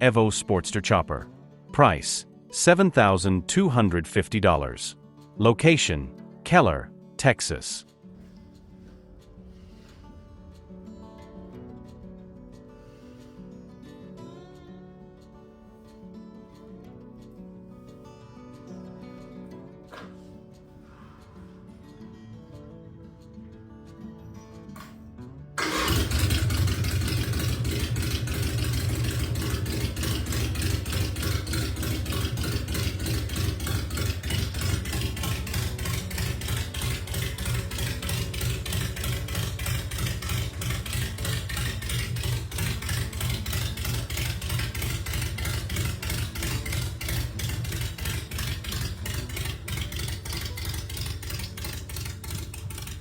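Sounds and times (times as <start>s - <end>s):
motorcycle engine running: 8.1s - 14.0s, 25.6s - 53.0s.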